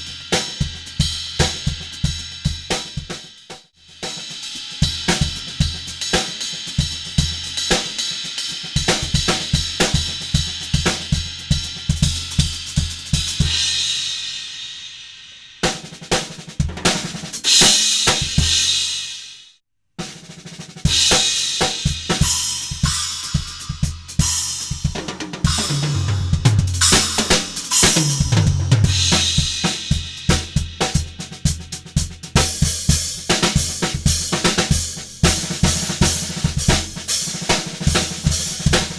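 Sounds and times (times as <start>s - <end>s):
snare drum: 0.0s - 13.7s, 15.6s - 38.9s
hi-hat: 0.0s - 14.6s, 26.5s - 38.9s
cymbals: 0.0s - 19.5s, 20.9s - 38.9s
bass drum: 8.8s - 13.8s, 20.9s - 38.9s
tom drum fill: 20.9s - 38.9s.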